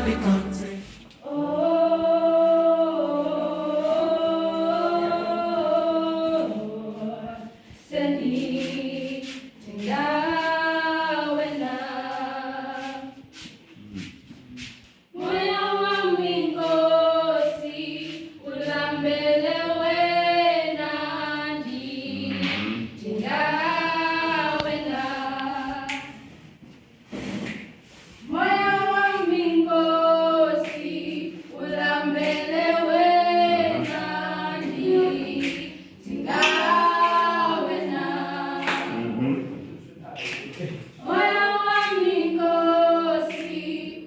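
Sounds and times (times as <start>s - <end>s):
group singing worship song: 0.0s - 44.0s.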